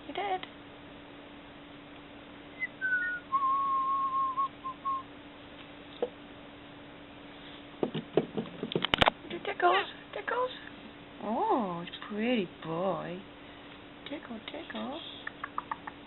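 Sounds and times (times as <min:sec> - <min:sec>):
person whistling: 0:02.6 - 0:05.1.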